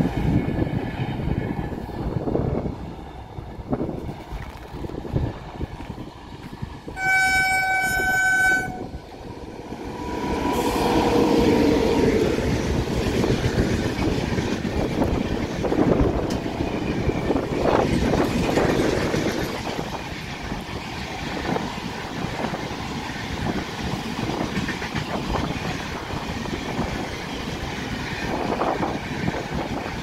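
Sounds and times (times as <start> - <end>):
train rumbling past on rails: 0.0 - 30.0
train horn blast: 7.0 - 9.0.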